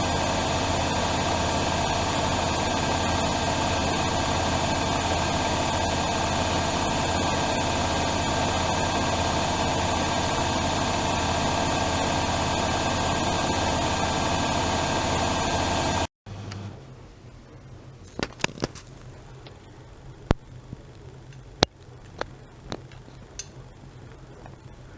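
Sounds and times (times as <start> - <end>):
washing machine motor whine: 0.0 - 16.9.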